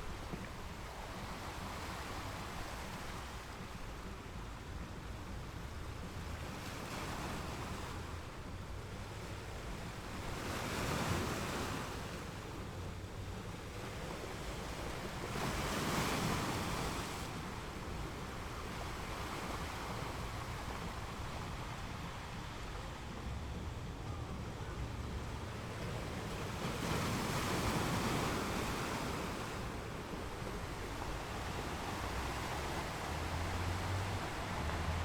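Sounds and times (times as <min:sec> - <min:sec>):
sea waves breaking on rocks: 0:25.2 - 0:35.0.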